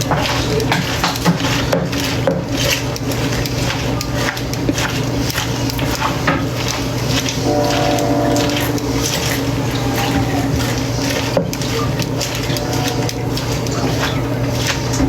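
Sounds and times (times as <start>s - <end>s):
salad leaves rustling: 0.0s - 15.0s
tongs scraping a bowl: 0.0s - 15.0s.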